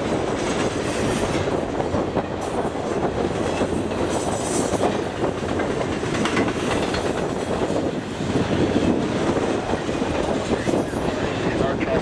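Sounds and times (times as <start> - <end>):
wheels clattering over rail joints: 0.0 - 12.0
wind buffeting microphone: 0.0 - 12.0.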